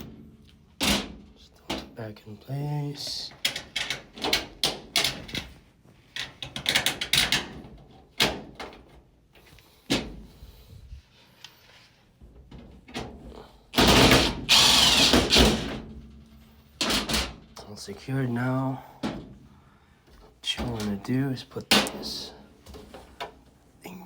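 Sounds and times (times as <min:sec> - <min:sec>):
power drill driving a screw: 0:13.8 - 0:15.8.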